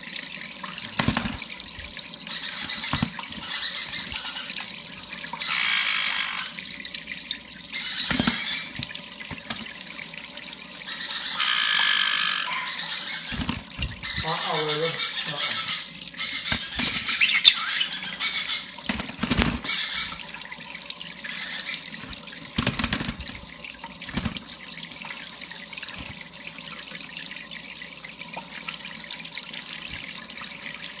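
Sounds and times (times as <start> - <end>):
tap water running: 0.0 - 31.0
bird splashing in water: 0.7 - 6.8, 7.7 - 10.0, 11.1 - 20.5, 21.3 - 24.6, 25.8 - 26.3
short high squeaks: 5.4 - 6.6, 11.1 - 13.1.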